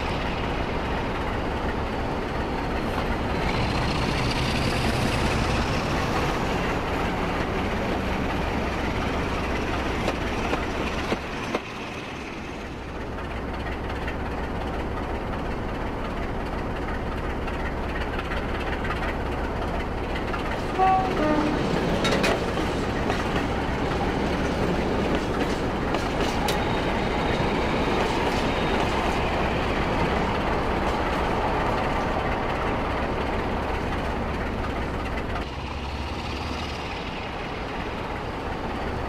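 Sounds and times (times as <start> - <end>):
diesel locomotive engine running: 0.0 - 39.0.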